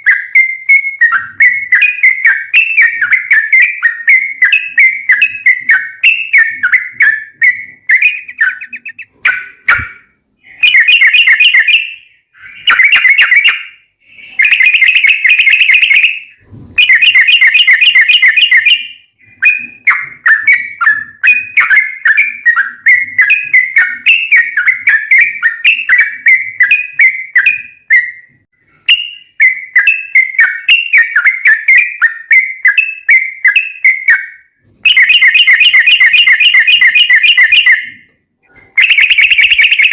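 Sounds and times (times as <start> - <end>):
bird chattering song: 0.0 - 28.2.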